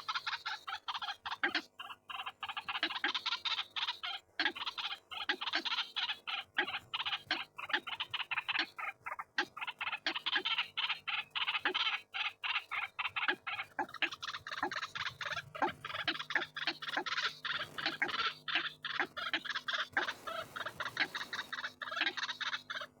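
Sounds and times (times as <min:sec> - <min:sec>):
waterhens croaking: 0:09.5 - 0:23.0
faint steady hum: 0:12.7 - 0:23.0.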